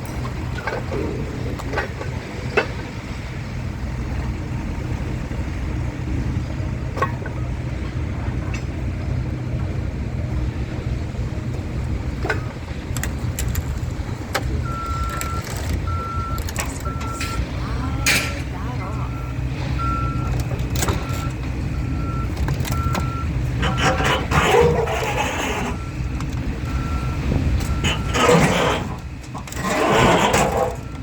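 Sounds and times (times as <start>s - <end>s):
vehicle engine running: 0.0s - 31.0s
reversing alarm beeping: 14.6s - 29.0s, 29.6s - 31.0s.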